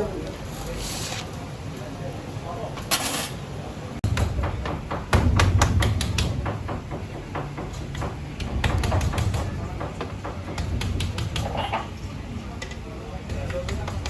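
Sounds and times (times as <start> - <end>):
knocks on a hard surface: 4.0 - 11.8.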